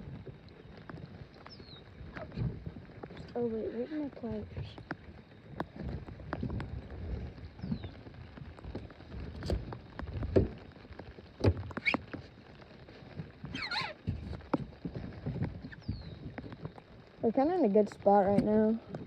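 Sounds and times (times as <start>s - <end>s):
gear knocking and clicking in boat: 0.0s - 19.0s
low wind rumble on microphone: 0.0s - 19.0s
short squeaky chirp: 13.5s - 14.0s.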